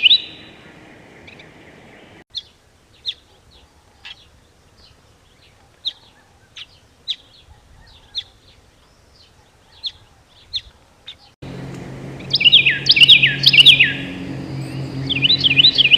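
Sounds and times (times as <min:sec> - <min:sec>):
small birds chirping: 0:00.0 - 0:15.9
steady low hum: 0:11.4 - 0:15.9
falling whistled bird notes: 0:12.2 - 0:15.9.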